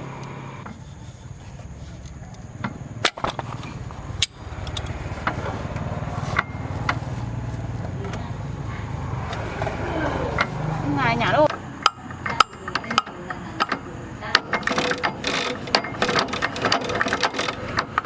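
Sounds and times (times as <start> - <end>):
knocks and clicks of metal tools: 2.0 - 7.0, 11.4 - 18.0
machine running with fast pulse: 14.6 - 18.0.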